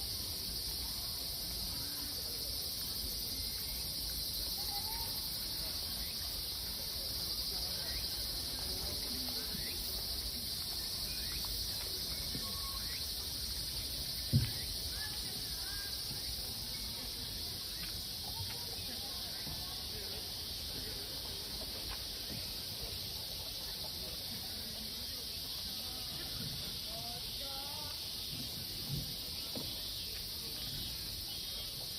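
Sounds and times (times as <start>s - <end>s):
faint chirps: 0.0s - 24.2s, 25.1s - 31.9s
insects droning: 0.0s - 31.9s
low thump: 14.3s - 14.7s.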